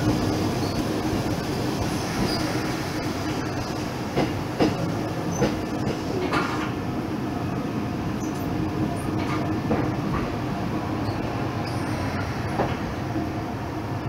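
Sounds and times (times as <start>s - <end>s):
train rumble inside carriage: 0.0s - 14.0s.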